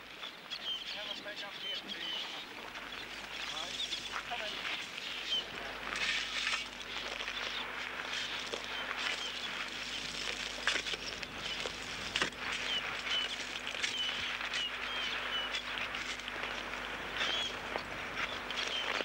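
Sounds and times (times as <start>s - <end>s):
steady outdoor hiss: 0.0s - 19.0s
sharp scrapes and clicks: 3.3s - 19.0s.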